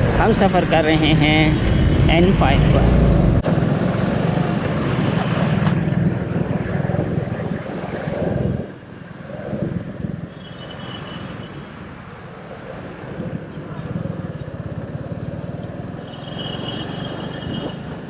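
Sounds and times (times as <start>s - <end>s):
motorcycle engine drone: 0.0s - 10.3s
wind rush: 0.0s - 10.4s, 11.8s - 14.8s.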